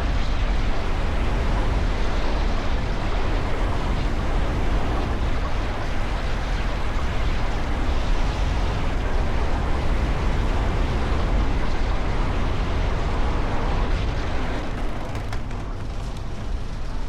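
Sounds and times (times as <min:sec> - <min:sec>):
roller coaster wheels rumbling: 0:00.0 - 0:17.0
wind rushing over microphone: 0:00.0 - 0:17.0.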